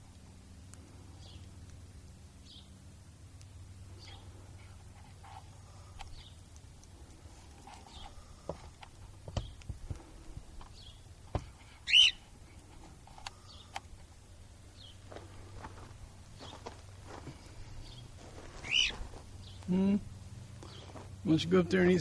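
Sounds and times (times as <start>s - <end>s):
cockatiel chirping: 11.8s - 12.2s, 18.6s - 19.0s.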